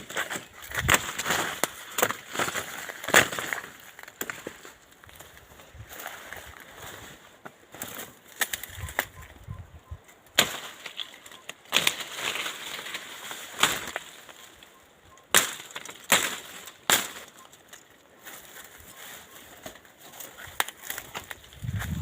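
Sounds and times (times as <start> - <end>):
footsteps crunching on dry brush: 0.0 - 9.2, 16.3 - 22.0.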